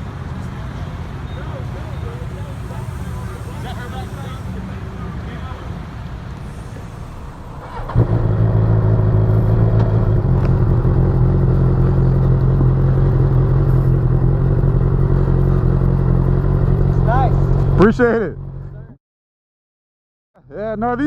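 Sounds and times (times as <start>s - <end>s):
motorcycle engine starting and idling: 6.3s - 18.9s.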